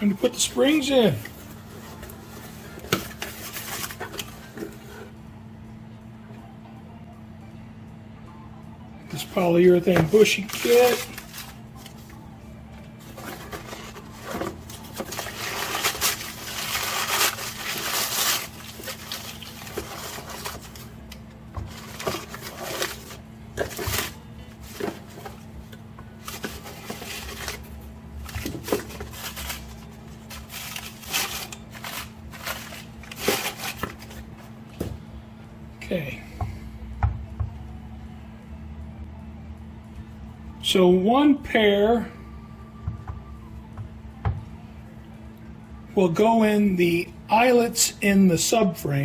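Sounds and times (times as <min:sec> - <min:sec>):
packaging rustling: 0:00.2 - 0:05.1, 0:09.1 - 0:12.2, 0:13.0 - 0:34.9.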